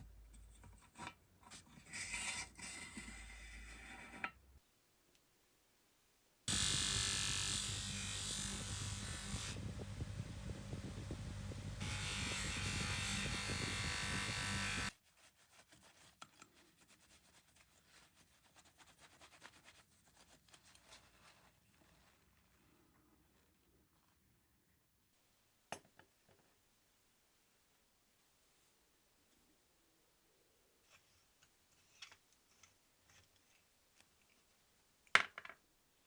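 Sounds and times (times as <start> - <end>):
electric power tool motor: 6.5 - 14.9.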